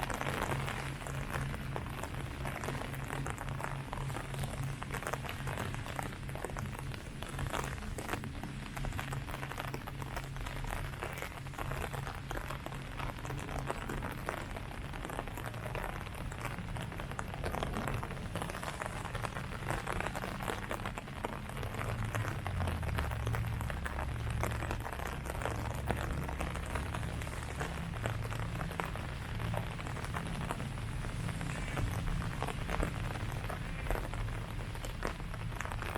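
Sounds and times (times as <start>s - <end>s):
rain falling on leaves: 0.0s - 35.9s
low rumble: 13.1s - 35.9s.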